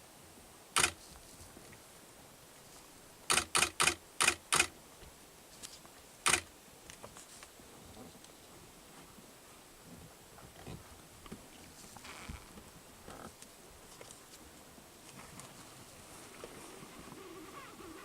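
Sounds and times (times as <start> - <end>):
sharp clicks: 0.8 - 1.0, 3.3 - 4.7, 6.2 - 6.5.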